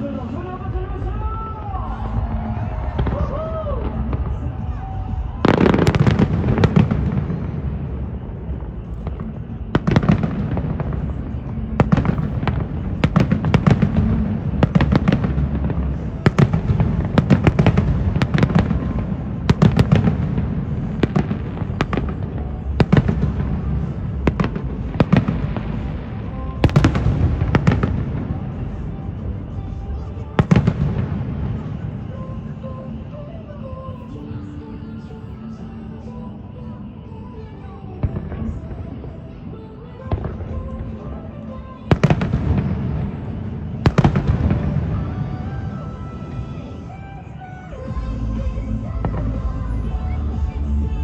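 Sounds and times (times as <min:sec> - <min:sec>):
fireworks bangs and pops: 0:02.2 - 0:32.1, 0:41.9 - 0:47.0.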